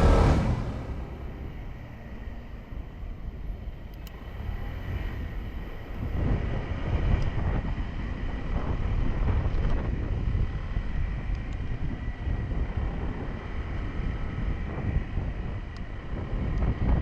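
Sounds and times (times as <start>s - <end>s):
motorcycle engine: 0.0s - 11.2s
low wind rumble: 0.0s - 17.0s.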